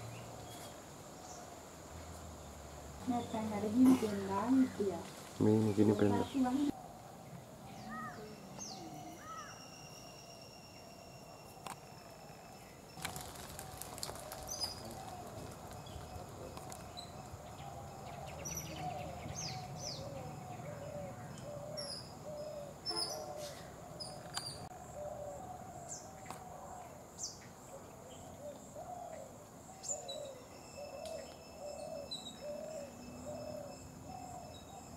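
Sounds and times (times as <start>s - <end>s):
bird hooting: 6.1s - 11.6s, 16.4s - 26.8s, 28.4s - 34.9s.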